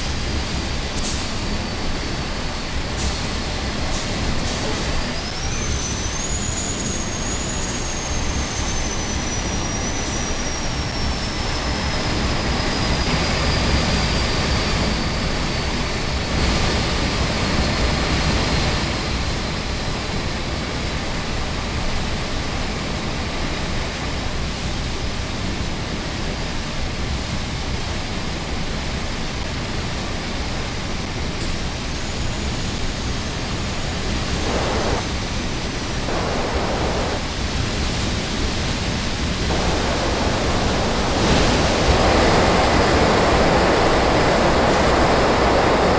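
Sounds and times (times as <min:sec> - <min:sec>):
vehicle road noise: 0:33.8 - 0:35.1, 0:35.9 - 0:37.8, 0:39.3 - 0:45.9.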